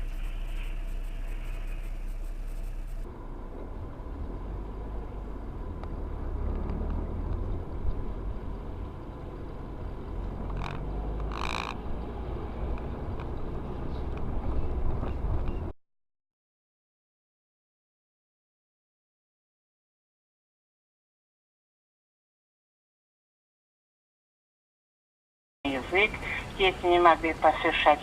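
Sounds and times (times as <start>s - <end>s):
short high-pitched tones: 0.0s - 3.0s
car engine and tyres rumbling: 0.0s - 15.7s, 25.7s - 28.0s.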